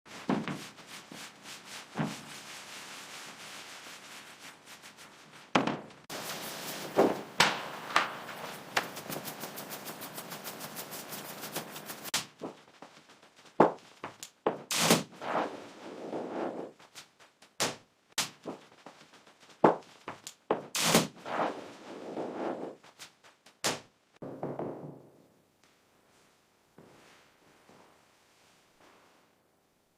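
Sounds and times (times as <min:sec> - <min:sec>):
rubbing scrape: 0:00.1 - 0:12.2, 0:14.7 - 0:16.9, 0:20.7 - 0:22.8
rhythmic scrubbing or sanding strokes: 0:00.6 - 0:05.4, 0:06.1 - 0:12.2.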